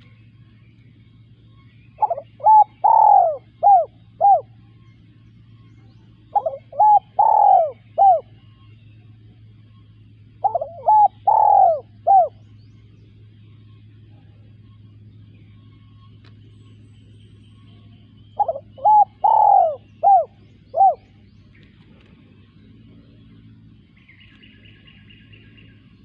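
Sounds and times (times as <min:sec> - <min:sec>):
dove cooing: 0:01.9 - 0:04.6, 0:06.1 - 0:08.6, 0:10.1 - 0:12.5, 0:17.8 - 0:23.1.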